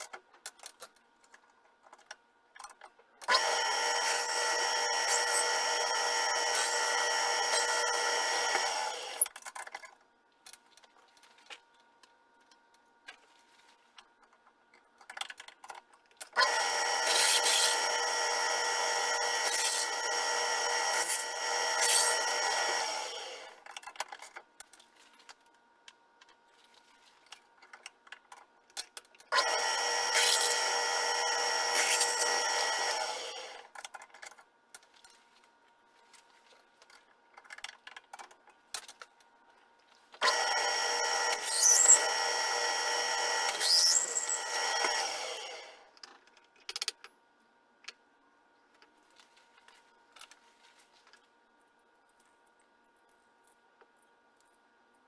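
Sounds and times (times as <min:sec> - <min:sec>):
power tool whining cutting metal: 0:03.3 - 0:09.3, 0:16.4 - 0:23.6, 0:29.3 - 0:33.7, 0:40.2 - 0:45.9.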